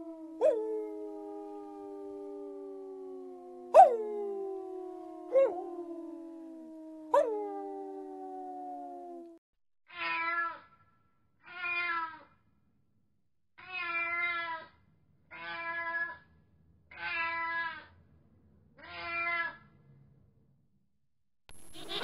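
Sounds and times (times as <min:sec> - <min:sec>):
cat meowing: 0:09.9 - 0:10.6, 0:11.5 - 0:12.2, 0:13.6 - 0:14.7, 0:15.3 - 0:16.2, 0:16.9 - 0:17.8, 0:18.8 - 0:19.6.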